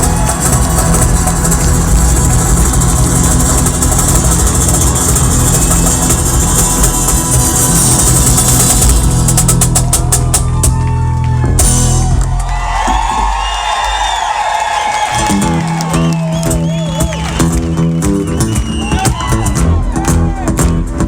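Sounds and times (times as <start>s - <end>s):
people whooping: 0.0s - 4.2s, 5.0s - 20.8s
live rock band playing: 0.0s - 13.2s, 15.1s - 21.0s
fast drum strikes: 0.0s - 14.4s.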